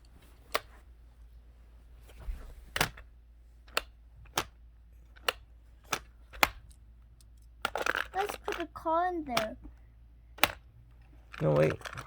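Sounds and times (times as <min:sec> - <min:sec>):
plastic toy pieces clicking: 0:03.7 - 0:09.6, 0:10.4 - 0:12.0.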